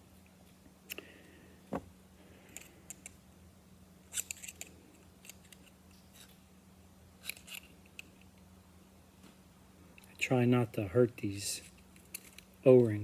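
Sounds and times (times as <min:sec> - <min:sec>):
steady low hum: 0:00.0 - 0:13.0
metal parts clicking and tapping: 0:04.1 - 0:06.3, 0:11.7 - 0:13.0.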